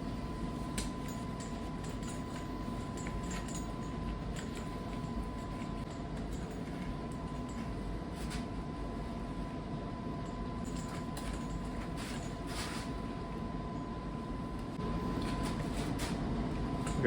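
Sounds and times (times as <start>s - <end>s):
faint thin whine: 0.0s - 17.0s
low room hum: 0.0s - 17.0s.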